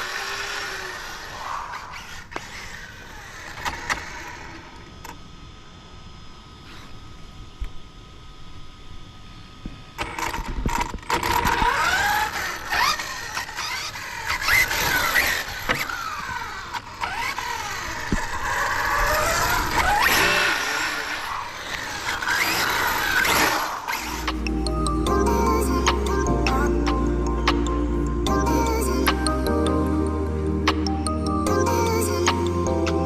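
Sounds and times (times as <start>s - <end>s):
radio-controlled car motor revving: 0.0s - 5.2s, 10.0s - 24.2s.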